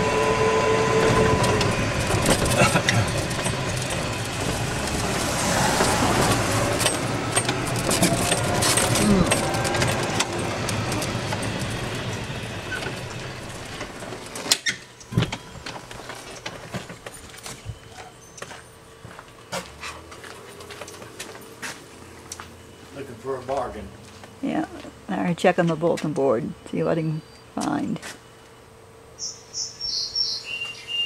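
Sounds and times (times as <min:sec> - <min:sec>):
vehicle road and wind noise: 0:00.0 - 0:17.9.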